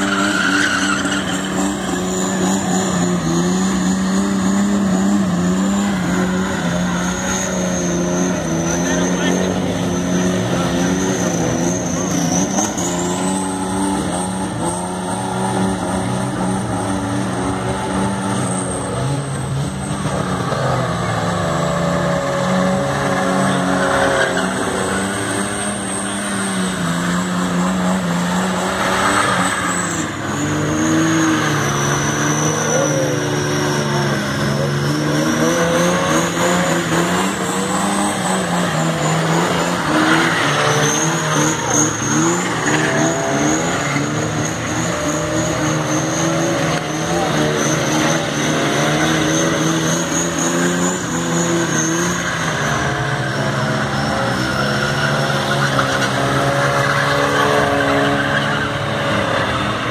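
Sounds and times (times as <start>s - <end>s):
tyres squealing: 0.0s - 4.2s, 22.7s - 59.7s
car engine at high revs: 0.0s - 59.9s.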